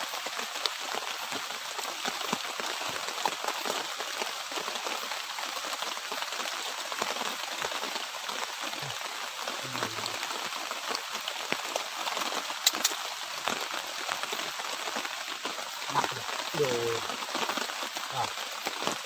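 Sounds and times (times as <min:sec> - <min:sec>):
light rain hissing: 0:00.0 - 0:19.0
sharp clicks: 0:12.6 - 0:13.0.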